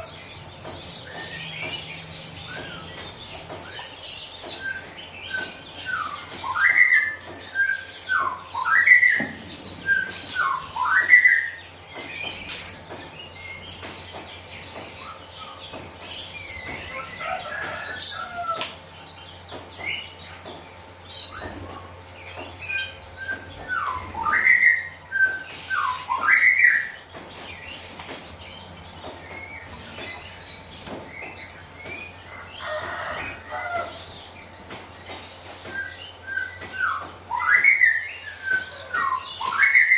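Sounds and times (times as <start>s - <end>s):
bird whistled song: 3.6s - 12.5s, 22.6s - 27.0s, 35.0s - 39.9s.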